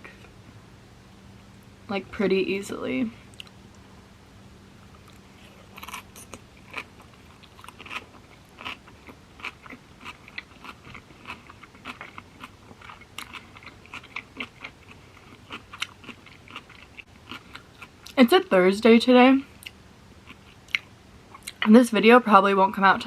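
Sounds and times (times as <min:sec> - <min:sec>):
person chewing with crunches: 0:04.8 - 0:18.2, 0:19.5 - 0:21.7.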